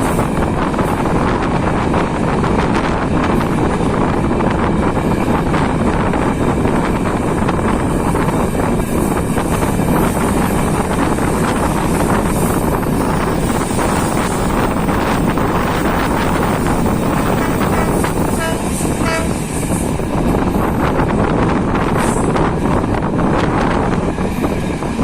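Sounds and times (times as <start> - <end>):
train rumbling: 0.0 - 25.0
wind buffeting microphone: 0.0 - 25.0.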